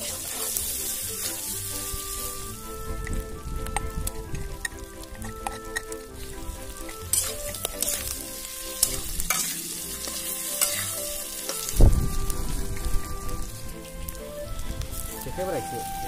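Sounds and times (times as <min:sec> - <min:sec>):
metal spatula scraping pan: 0:00.0 - 0:01.7, 0:04.6 - 0:11.7
pork sizzling in pan: 0:00.0 - 0:16.0.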